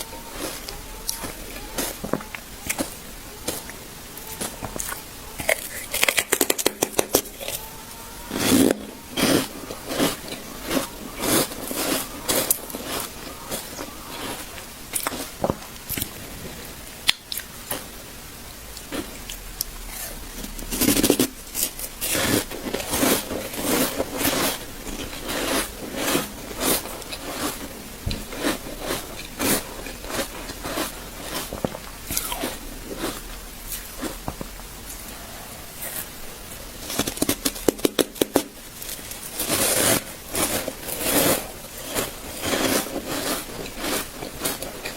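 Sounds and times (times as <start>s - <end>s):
person crunching ice: 36.8s - 44.9s.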